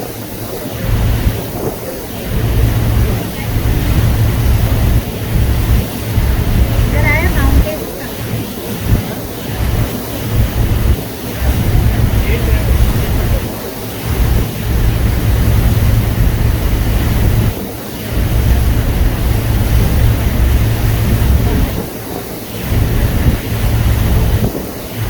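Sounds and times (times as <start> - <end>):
water hissing: 0.0 - 25.0
wind buffeting microphone: 0.0 - 25.0.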